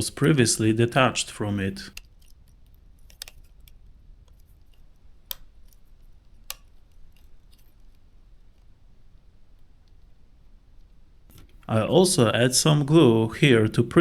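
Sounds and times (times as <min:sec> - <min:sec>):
tweezers and plastic parts clicking: 0:01.9 - 0:08.8
connector sharp clicks: 0:03.0 - 0:07.7.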